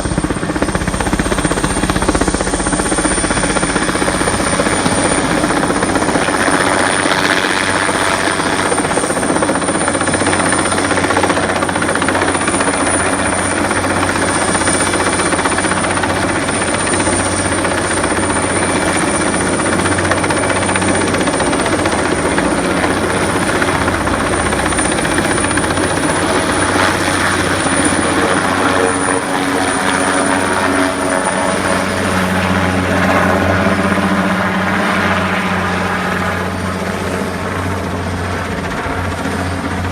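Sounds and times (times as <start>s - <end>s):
helicopter rotor and engine: 0.0s - 39.9s
thin high whine: 22.3s - 34.5s.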